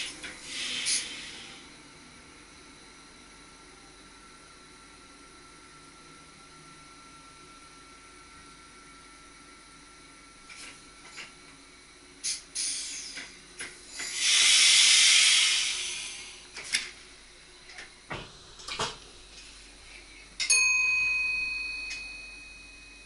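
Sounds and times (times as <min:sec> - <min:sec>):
compressed air hissing: 0:00.0 - 0:01.6, 0:12.2 - 0:13.2, 0:13.8 - 0:16.5
bell-like ding: 0:20.4 - 0:23.0.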